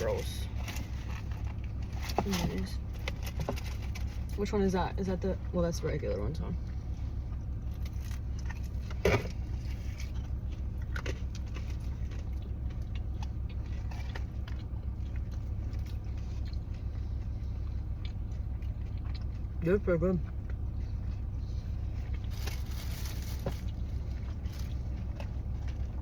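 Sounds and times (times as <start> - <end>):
food handling clicks and rustles: 0.0 - 4.4, 7.6 - 16.9, 21.6 - 26.0
car idling hum: 0.0 - 26.0
crackle: 20.5 - 26.0.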